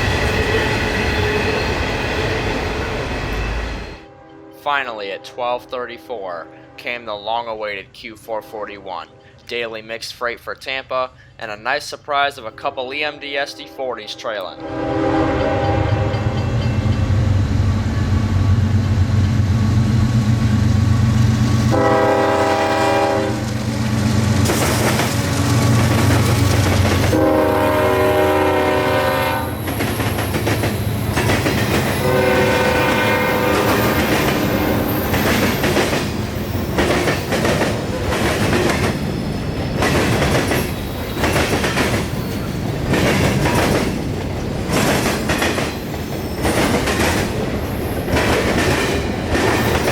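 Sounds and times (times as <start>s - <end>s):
diesel locomotives rumbling: 0.0s - 49.9s
train air horn blasts: 4.0s - 7.1s, 8.4s - 9.4s, 12.5s - 16.5s, 21.7s - 23.5s, 27.0s - 29.7s, 31.8s - 35.2s
train wheels clickety-clack: 23.4s - 27.3s, 29.6s - 32.2s, 33.4s - 49.9s.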